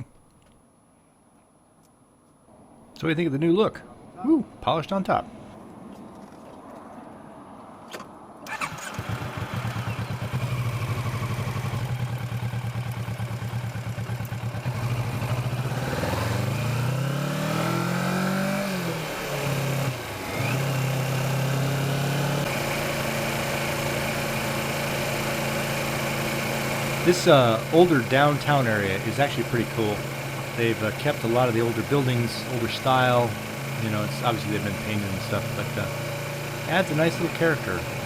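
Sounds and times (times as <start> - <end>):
motorcycle engine: 8.5 - 38.0.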